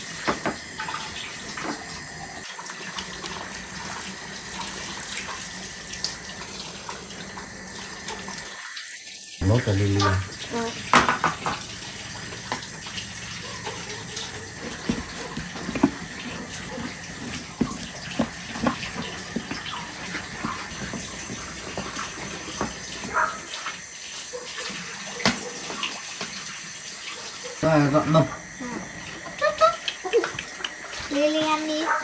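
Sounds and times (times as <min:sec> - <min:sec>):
steady rain hiss: 0:09.4 - 0:23.4, 0:27.6 - 0:31.8.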